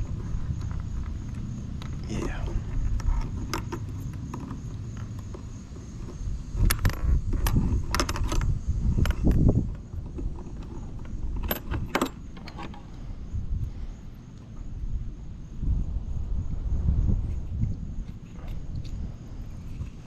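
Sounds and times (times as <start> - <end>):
metallic clinks and rattles: 0.2 - 12.9.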